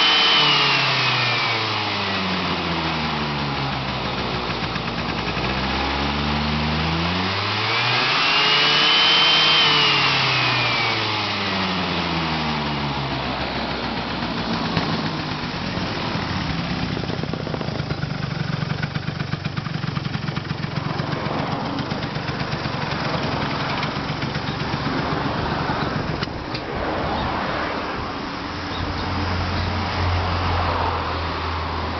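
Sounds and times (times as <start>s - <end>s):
scooter engine running: 0.0s - 26.7s, 28.2s - 31.9s.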